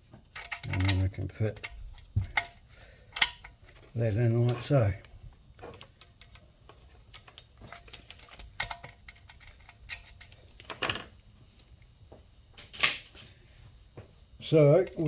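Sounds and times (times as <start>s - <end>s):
small metal parts clicking: 0.3s - 4.8s, 7.0s - 11.0s.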